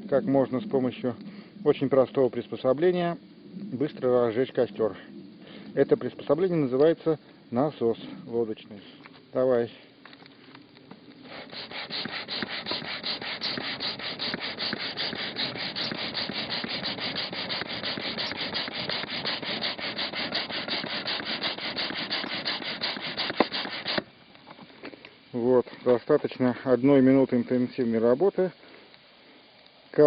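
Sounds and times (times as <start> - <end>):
air pump whooshing: 11.2 - 24.1.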